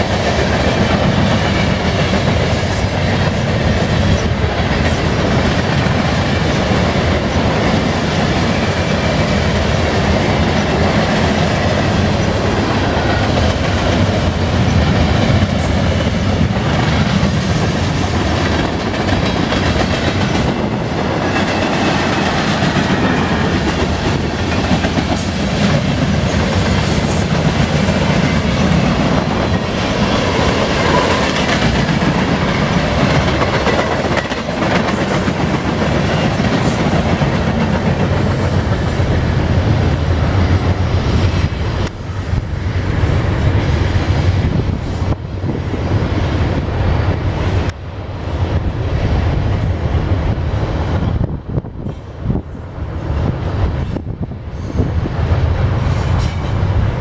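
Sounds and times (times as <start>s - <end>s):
wheels clacking over rail joints: 0.0s - 39.0s
freight train rumbling: 0.0s - 57.0s.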